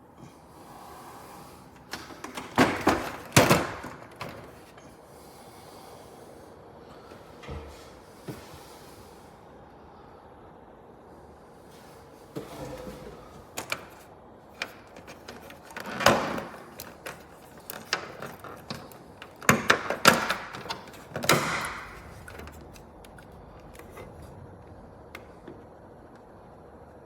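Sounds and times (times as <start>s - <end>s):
handling clicks and knocks: 1.8s - 4.8s, 13.5s - 14.0s, 14.6s - 24.4s.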